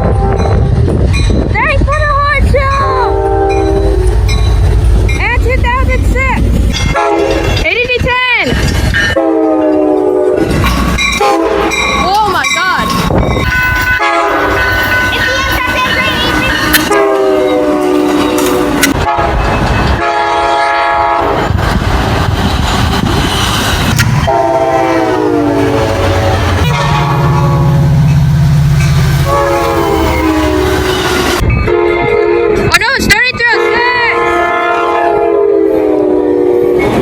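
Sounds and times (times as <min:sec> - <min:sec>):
locomotive air horn blasts: 0:00.0 - 0:00.8, 0:03.1 - 0:04.1, 0:06.9 - 0:07.4, 0:09.2 - 0:11.8, 0:13.5 - 0:21.4, 0:24.2 - 0:28.0, 0:29.1 - 0:32.8, 0:33.5 - 0:37.0
train rumble and rail noise: 0:00.0 - 0:37.0.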